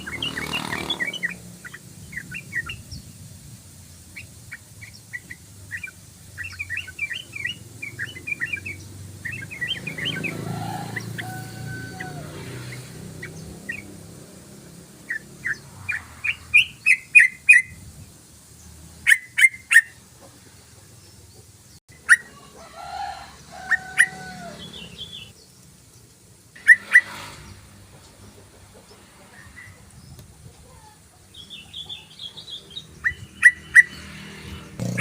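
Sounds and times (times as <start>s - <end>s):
bird sharp chirps: 0.0s - 3.2s, 4.1s - 14.0s, 15.0s - 17.8s, 26.6s - 27.7s, 30.8s - 35.0s.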